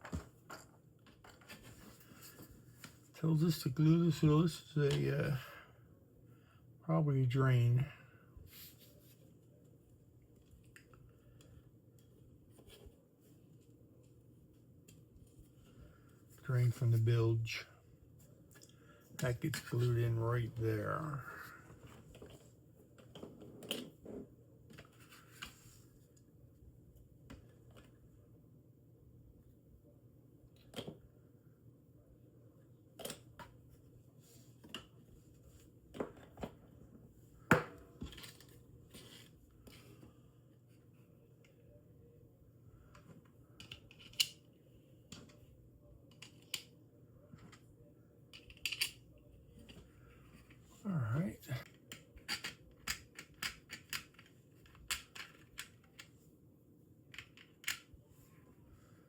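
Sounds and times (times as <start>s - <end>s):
small plastic parts clicking: 43.0s - 44.4s, 48.3s - 49.0s, 51.7s - 56.1s, 57.1s - 57.9s.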